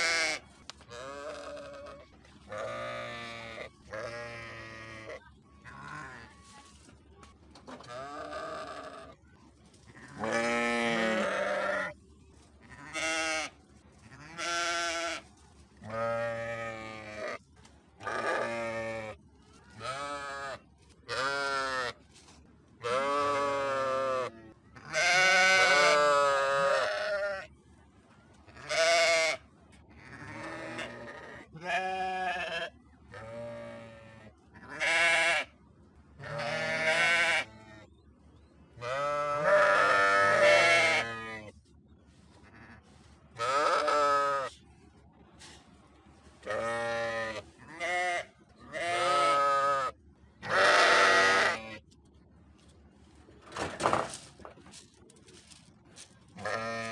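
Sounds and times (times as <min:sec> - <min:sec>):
sheep bleating: 0:00.0 - 0:06.3, 0:10.2 - 0:12.0, 0:22.8 - 0:27.5, 0:30.0 - 0:35.5, 0:36.2 - 0:37.6, 0:38.8 - 0:41.4, 0:43.4 - 0:44.5, 0:46.5 - 0:51.8, 0:56.4 - 0:56.9.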